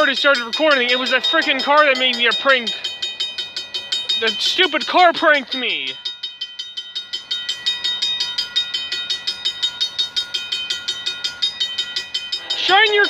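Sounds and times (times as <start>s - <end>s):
railroad crossing bell ringing: 0.0s - 13.0s.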